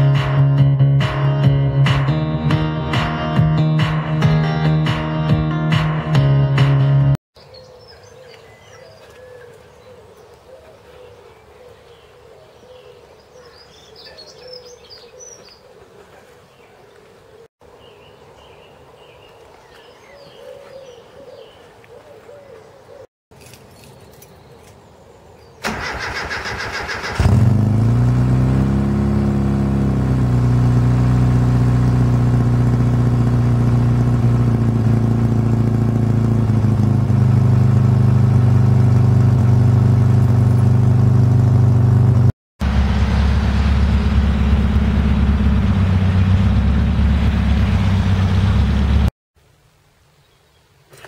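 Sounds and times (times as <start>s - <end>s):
starter motor cranking: 25.6s - 28.1s
car engine idling: 25.7s - 49.1s.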